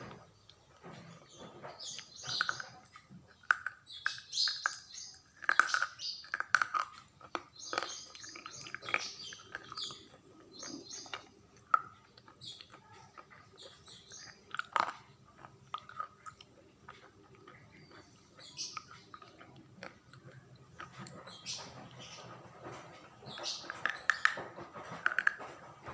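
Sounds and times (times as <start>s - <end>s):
chewing crunchy food: 0.0s - 25.9s
small birds chirping: 0.0s - 25.9s.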